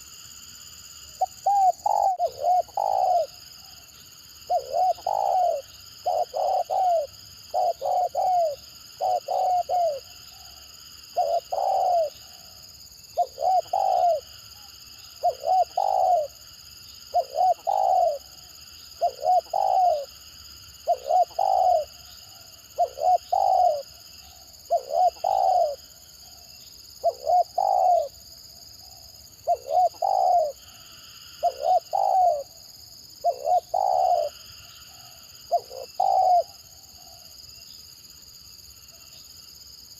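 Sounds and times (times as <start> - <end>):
dove cooing: 1.2 - 3.8, 4.5 - 12.6, 13.2 - 16.4, 17.1 - 20.1, 20.8 - 26.4, 27.0 - 28.2, 29.4 - 30.8, 31.4 - 32.6, 33.2 - 37.2.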